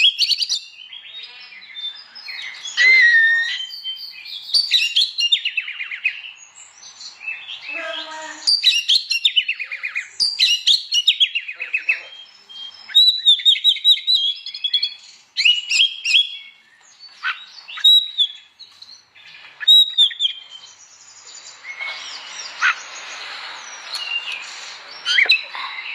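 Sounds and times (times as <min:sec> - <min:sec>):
bird singing whistles and trills: 0:00.0 - 0:25.9
soft hiss: 0:20.4 - 0:25.1.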